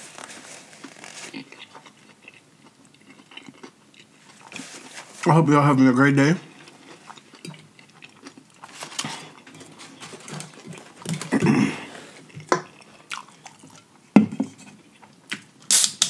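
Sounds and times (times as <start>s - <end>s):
chewing with lip-smacking: 1.3s - 4.6s, 6.6s - 9.6s, 12.3s - 13.9s.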